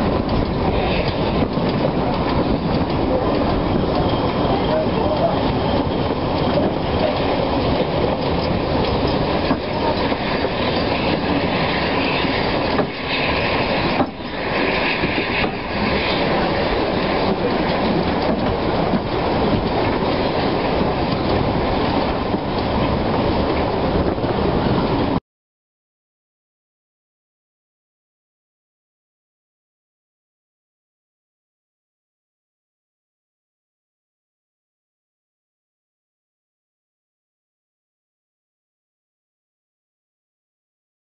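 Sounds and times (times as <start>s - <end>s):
train rumble: 0.0s - 25.2s
wheels clattering over rail joints: 0.1s - 25.2s.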